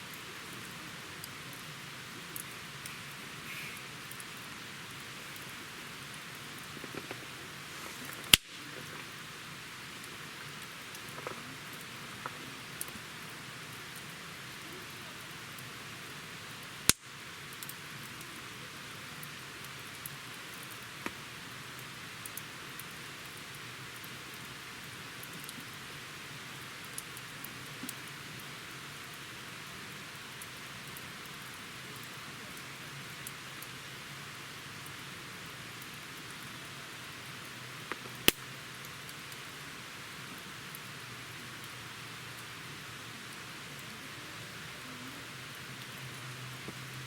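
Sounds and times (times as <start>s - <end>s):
campfire hissing and crackling: 0.0s - 47.0s
sharp loud pops of fire: 8.2s - 8.7s.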